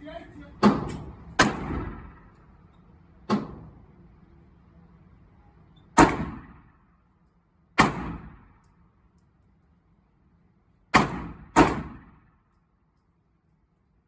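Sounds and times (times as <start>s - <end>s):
gunshots with echo: 0.6s - 2.3s, 6.0s - 6.7s, 7.8s - 8.6s, 10.9s - 12.2s.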